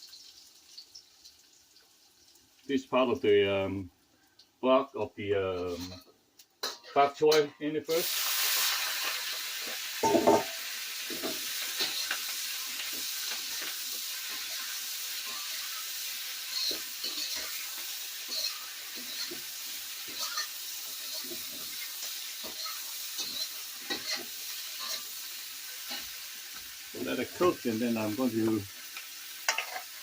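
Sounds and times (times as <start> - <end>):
vegetables sizzling in hot oil: 0.0 - 6.9, 7.9 - 30.0
spatula scraping and knocking pan: 10.0 - 14.7, 16.5 - 25.1, 29.5 - 29.9.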